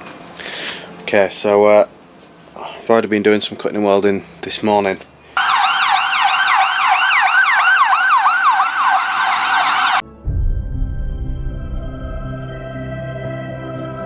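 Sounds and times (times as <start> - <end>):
siren yelping: 5.4 - 10.0
music with sustained tones and bass: 10.0 - 14.0.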